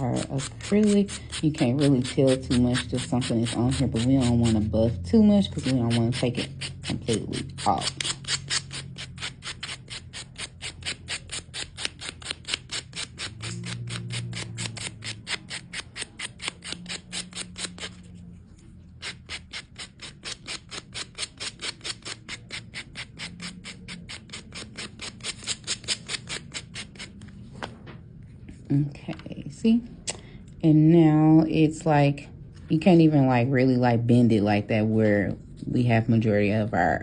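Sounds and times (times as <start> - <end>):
nail buffer rubbing: 0.0 - 4.7, 5.6 - 18.2, 19.0 - 27.3.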